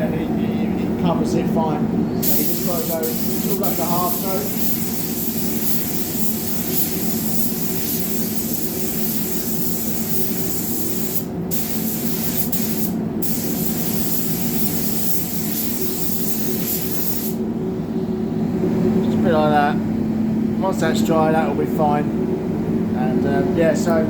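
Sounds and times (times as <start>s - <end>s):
steady low hum: 0.0s - 24.0s
paint spray gun hissing: 2.2s - 17.4s.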